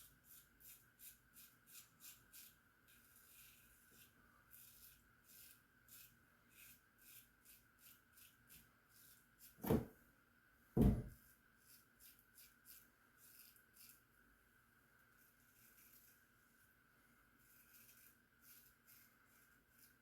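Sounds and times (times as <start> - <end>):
loud thuds: 10.8 - 11.1
razor scraping stubble: 11.6 - 14.0, 15.5 - 16.2, 17.4 - 20.0.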